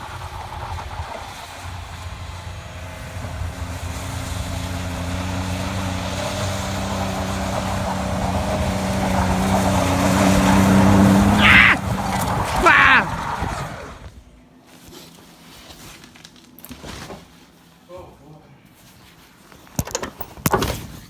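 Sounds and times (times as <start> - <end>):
truck engine running: 0.0 - 13.5.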